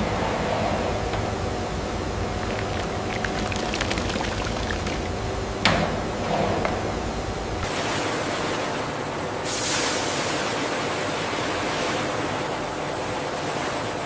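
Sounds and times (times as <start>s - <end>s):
faint steady hum: 0.0s - 14.0s
machinery rushing hiss: 9.3s - 12.2s.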